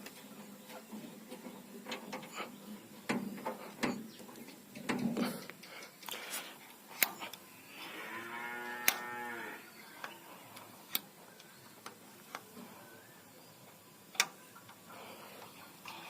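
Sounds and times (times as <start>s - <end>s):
cow mooing: 7.8s - 9.7s.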